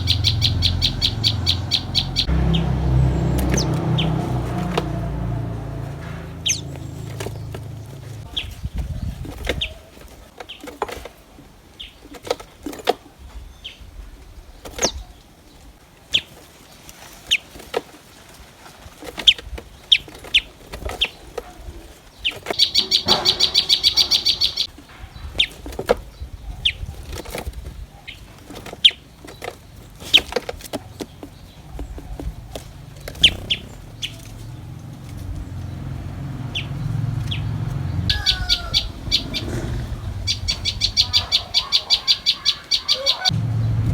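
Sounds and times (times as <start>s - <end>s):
bird chirps: 0.0s - 9.8s, 22.2s - 25.6s, 33.1s - 43.9s.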